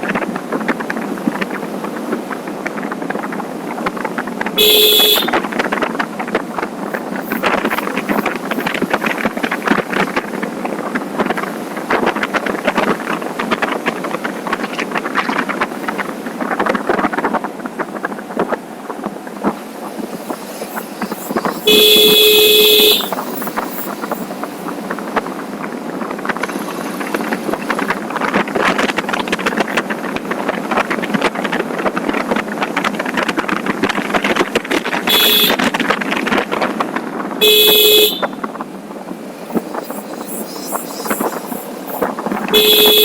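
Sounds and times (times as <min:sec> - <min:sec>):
motorcycle road noise: 0:00.0 - 0:43.0
wind on microphone: 0:00.0 - 0:43.0
vehicle horn honking: 0:04.6 - 0:05.4, 0:21.5 - 0:23.5, 0:35.1 - 0:35.7, 0:37.4 - 0:38.4, 0:42.4 - 0:43.0.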